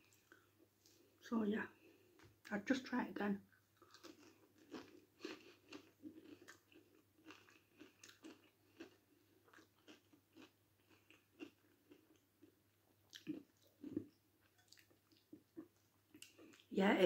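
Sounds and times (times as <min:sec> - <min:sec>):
close-up chewing crunches: 0:03.8 - 0:12.5, 0:13.1 - 0:16.7.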